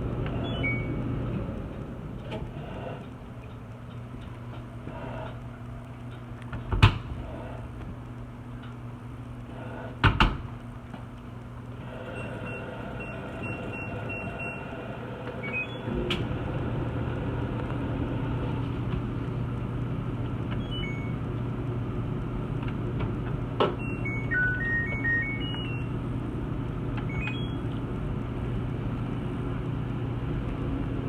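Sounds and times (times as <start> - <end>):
washer motor hum: 0.0 - 31.0
short high beeps: 0.4 - 1.0, 23.8 - 26.0, 27.1 - 27.6.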